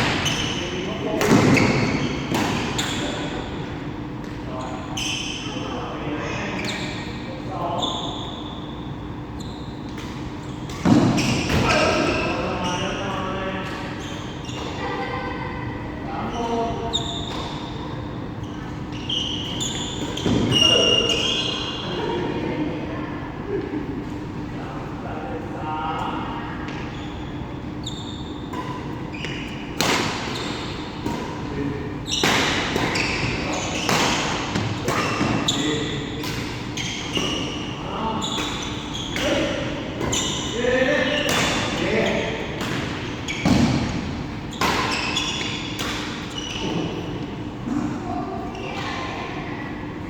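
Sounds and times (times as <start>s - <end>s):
shoes squeaking on court floor: 0.0s - 15.4s, 16.2s - 22.2s, 26.0s - 47.6s, 48.4s - 49.3s
racket hitting shuttlecock: 28.5s - 31.5s, 32.2s - 37.4s, 41.2s - 41.8s, 42.5s - 46.8s
rackets hitting shuttlecock: 42.5s - 46.9s.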